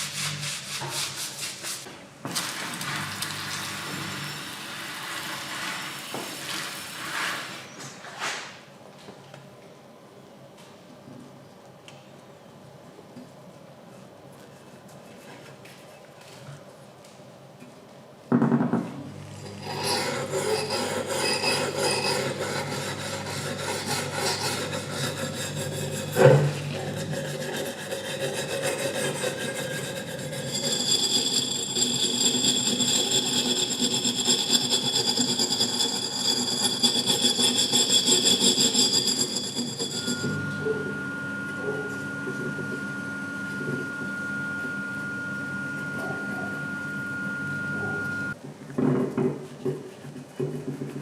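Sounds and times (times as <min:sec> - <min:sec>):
rasping on metal engine part: 0:19.5 - 0:40.3
steady machine tone: 0:30.5 - 0:48.4.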